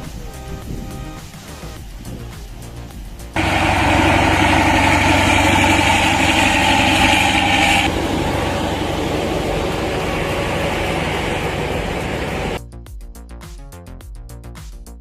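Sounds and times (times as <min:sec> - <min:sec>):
vehicle engine running: 0:03.3 - 0:12.6.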